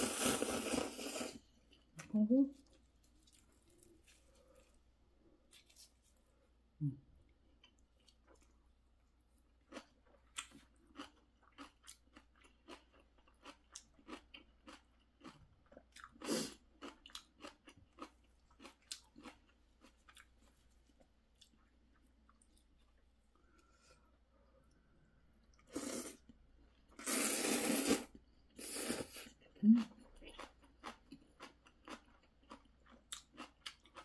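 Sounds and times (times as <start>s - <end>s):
crunchy chewing: 9.6s - 23.0s, 29.8s - 34.0s.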